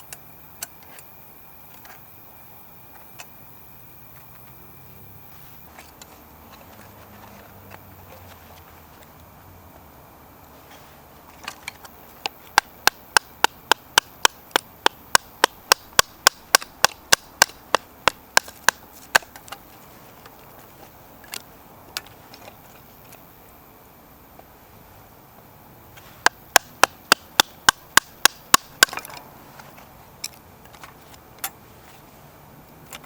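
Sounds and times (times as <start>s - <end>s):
axe chopping wood: 12.5s - 19.4s, 26.0s - 29.2s.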